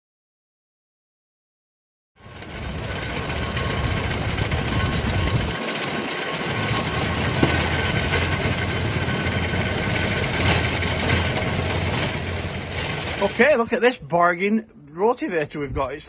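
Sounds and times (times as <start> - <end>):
tractor diesel engine running: 2.2 - 14.0.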